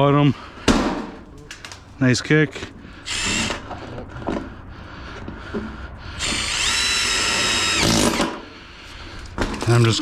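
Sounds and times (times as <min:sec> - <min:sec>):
power drill whining: 0:03.0 - 0:03.7, 0:06.2 - 0:08.4.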